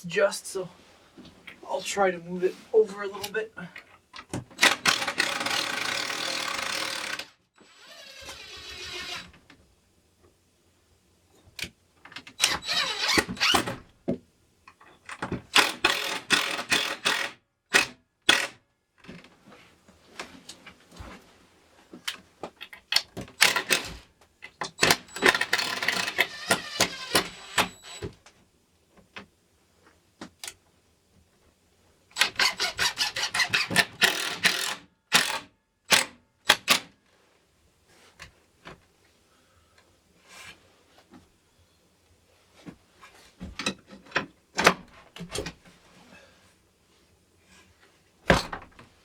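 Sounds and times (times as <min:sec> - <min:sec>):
power driver driving screws: 0:04.6 - 0:09.3, 0:12.4 - 0:13.8, 0:15.5 - 0:18.5, 0:23.4 - 0:24.0, 0:24.8 - 0:28.1, 0:32.2 - 0:36.9
knocks and clicks handling hardware: 0:43.4 - 0:45.6.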